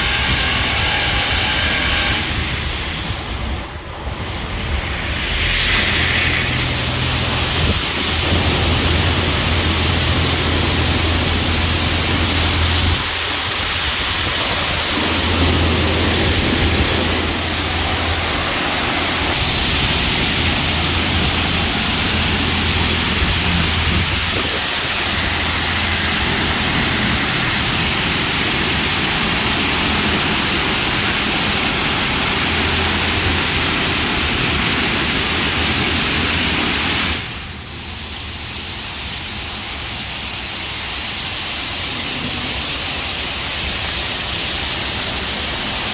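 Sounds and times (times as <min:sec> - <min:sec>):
low hum: 0:00.0 - 0:30.2
high-pressure water jets spraying: 0:00.0 - 0:45.9.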